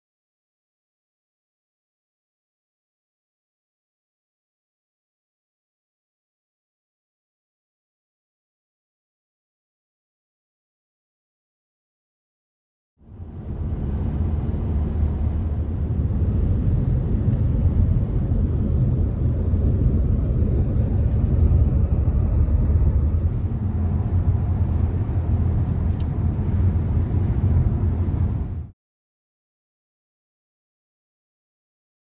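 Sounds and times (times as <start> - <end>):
car road and wind noise: 13.0 - 28.8.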